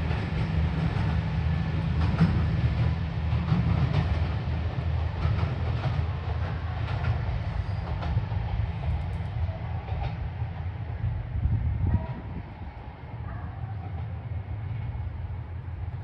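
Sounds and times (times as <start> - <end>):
diesel train engine rumble: 0.0 - 16.0.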